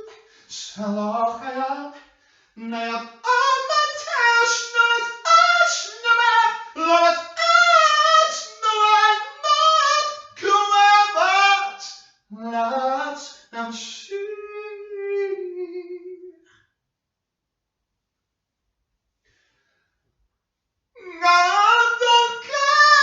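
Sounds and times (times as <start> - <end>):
woman singing unaccompanied: 2.6 - 11.8.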